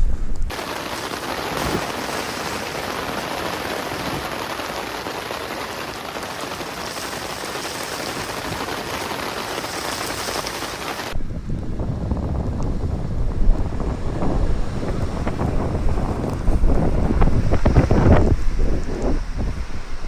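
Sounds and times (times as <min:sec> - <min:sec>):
steady rain: 0:00.2 - 0:20.0
wind rumble on microphone: 0:11.1 - 0:20.0.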